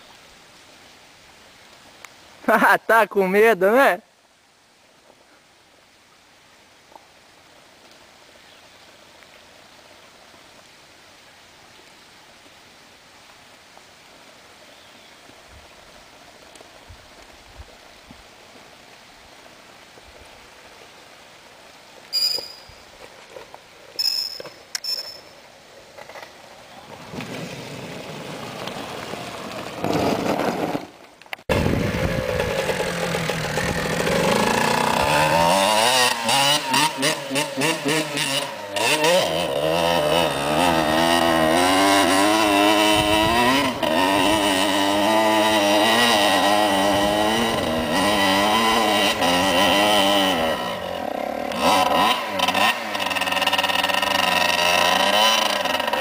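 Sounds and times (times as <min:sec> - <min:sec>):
dirt bike engine revving: 0:31.5 - 0:56.0.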